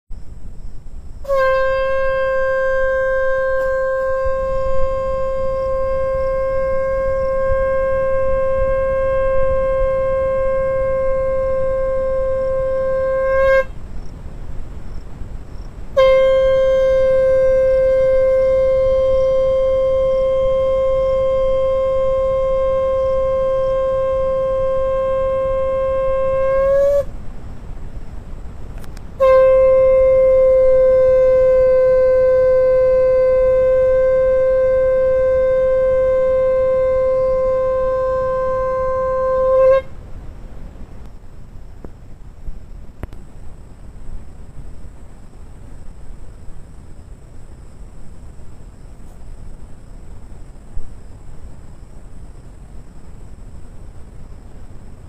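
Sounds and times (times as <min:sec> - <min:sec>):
conch shell blasts: 0:01.2 - 0:13.8, 0:15.9 - 0:27.1, 0:28.8 - 0:40.0.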